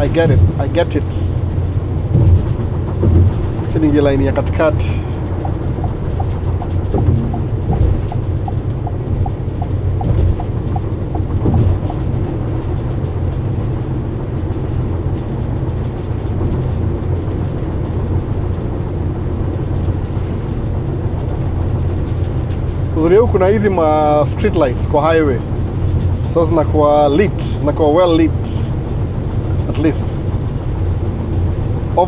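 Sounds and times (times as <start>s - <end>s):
road and engine rumble: 0.0s - 32.0s
turn signal ticking: 4.5s - 12.8s.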